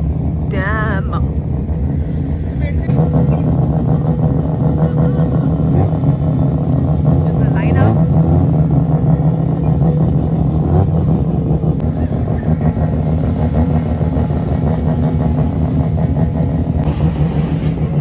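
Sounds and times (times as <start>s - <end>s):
race car engines droning: 0.0s - 18.0s.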